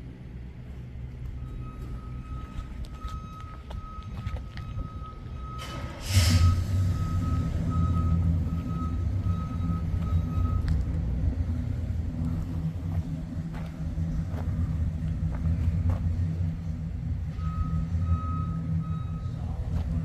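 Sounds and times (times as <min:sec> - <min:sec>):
car engine starting and running: 0:04.8 - 0:20.0.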